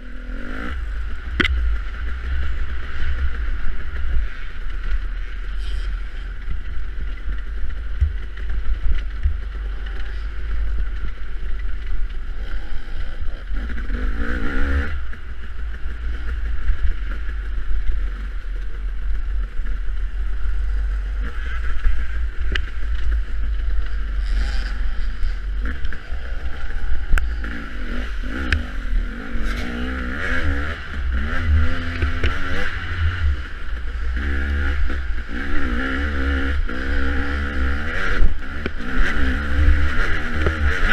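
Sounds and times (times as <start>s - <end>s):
dirt bike engine revving: 0.0s - 19.4s, 20.1s - 40.9s.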